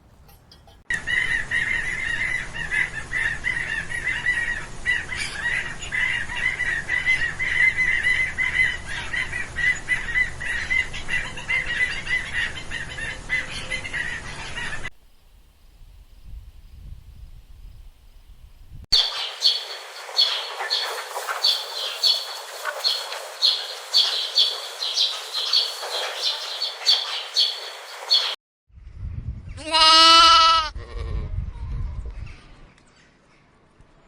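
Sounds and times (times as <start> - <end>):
flock of birds calling: 0.6 - 14.9, 19.0 - 28.4.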